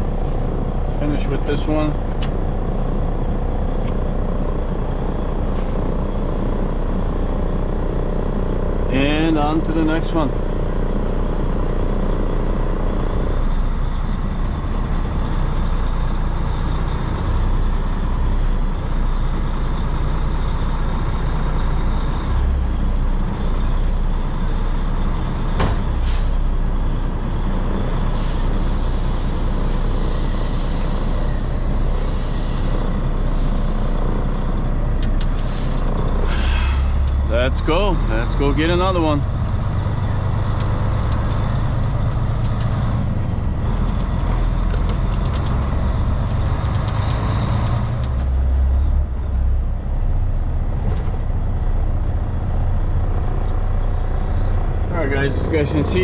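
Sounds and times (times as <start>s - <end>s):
diesel truck engine running: 0.0s - 56.0s
air brake hiss: 26.0s - 26.5s, 28.1s - 33.8s, 35.3s - 37.0s.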